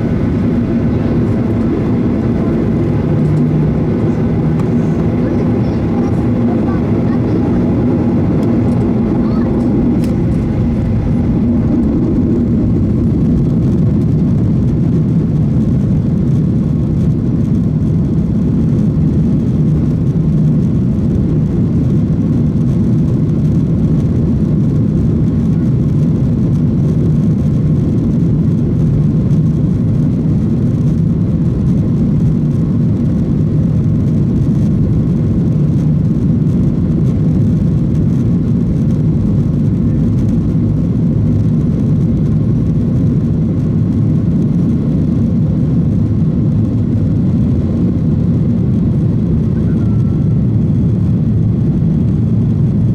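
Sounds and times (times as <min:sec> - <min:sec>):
airflow: 0:00.0 - 0:14.7
jet engine cabin rumble: 0:00.0 - 0:52.9.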